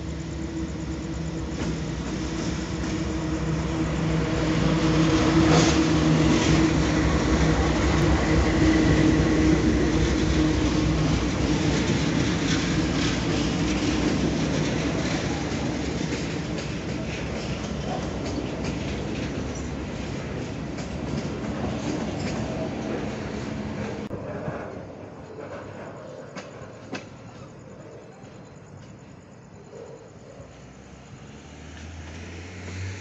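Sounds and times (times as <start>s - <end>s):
locomotive engine drone: 0.0s - 26.1s
freight cars rumbling past: 0.0s - 27.7s, 30.5s - 33.0s
wheels clacking over rails: 0.5s - 29.2s.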